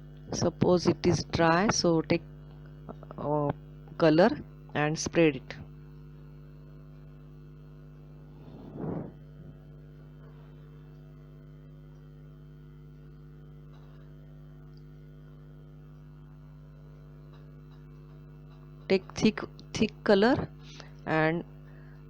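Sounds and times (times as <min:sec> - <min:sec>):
electrical mains hum: 0:00.0 - 0:22.0
short rustling noise: 0:08.3 - 0:09.6.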